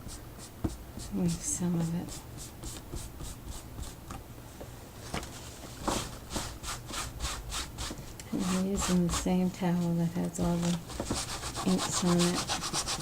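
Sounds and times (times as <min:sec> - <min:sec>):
cloth towel rubbing surface: 0:05.0 - 0:13.0.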